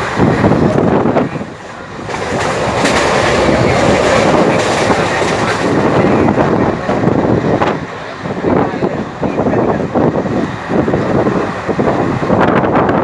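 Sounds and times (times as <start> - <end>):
train rumbling: 0.0 - 13.0
wheels clicking over rails: 2.0 - 6.2.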